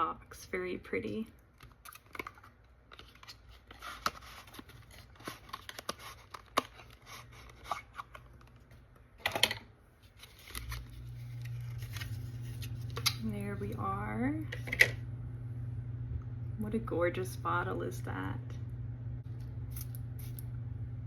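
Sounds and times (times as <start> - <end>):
low steady hum: 0.0 - 21.0
cardboard packaging rustling: 1.6 - 8.8, 10.0 - 13.2.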